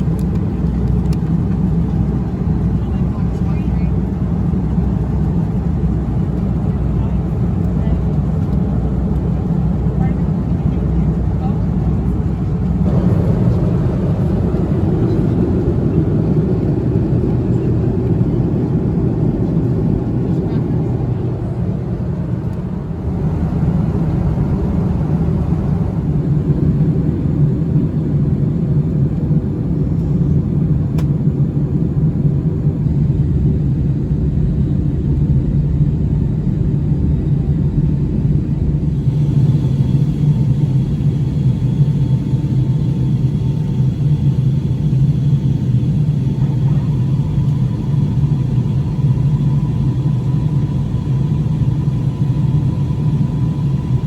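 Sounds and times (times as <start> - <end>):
airplane engines rumbling: 0.0 - 54.0
rushing air: 12.8 - 15.9
faint steady whine: 36.1 - 54.0.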